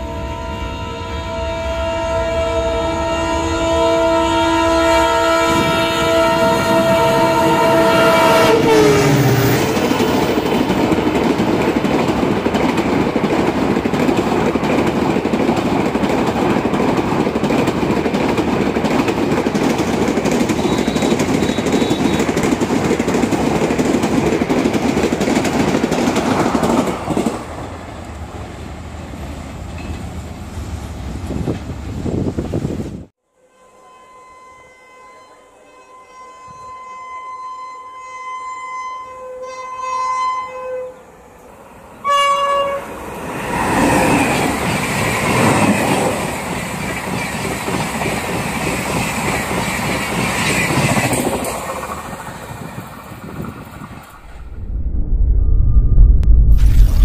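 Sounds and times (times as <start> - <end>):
train horn chord: 0.0 - 10.8, 33.2 - 41.1, 42.0 - 43.0
train wheels rumbling on rails: 5.5 - 33.1, 43.0 - 57.0.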